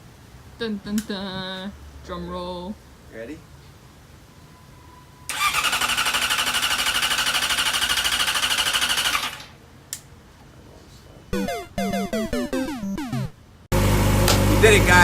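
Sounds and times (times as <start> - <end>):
motorcycle starter cranking: 5.3 - 9.5
synth music: 11.4 - 13.5.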